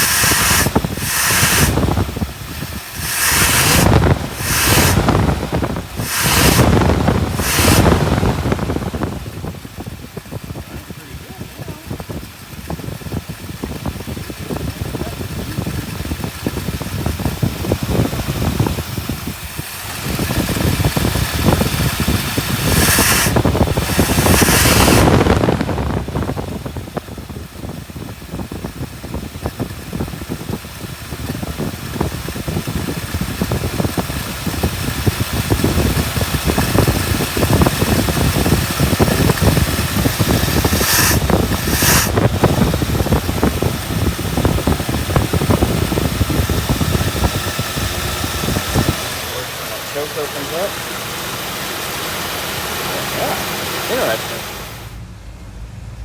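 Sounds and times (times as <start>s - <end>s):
rushing noise: 0.0s - 9.8s, 36.6s - 55.1s
car engine running: 0.0s - 56.0s.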